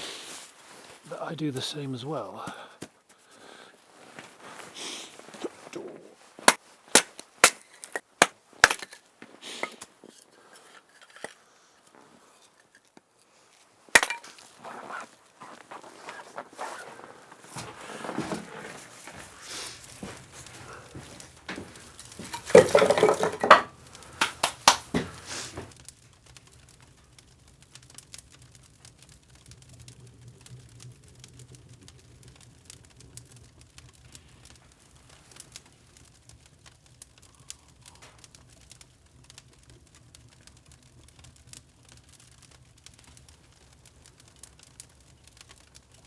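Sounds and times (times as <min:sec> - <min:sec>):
faint crackles: 0:00.0 - 0:46.0
firewood clattering together: 0:02.8 - 0:25.8.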